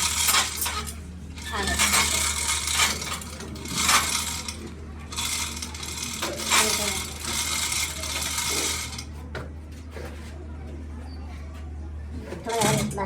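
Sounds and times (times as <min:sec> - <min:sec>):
metal scraping and clinking: 0:00.0 - 0:09.1
low machine hum: 0:00.0 - 0:13.0.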